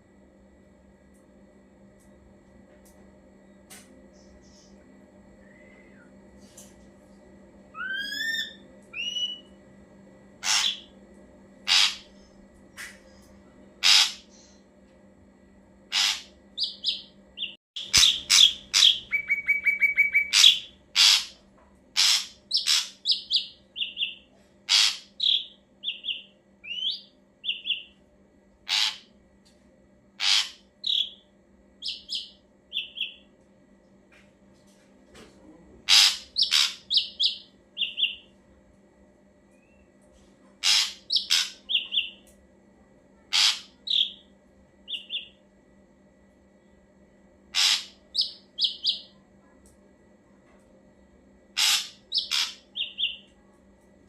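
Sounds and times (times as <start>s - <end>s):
faint steady hum: 0.0s - 54.0s
bird singing whistled notes: 7.8s - 9.5s.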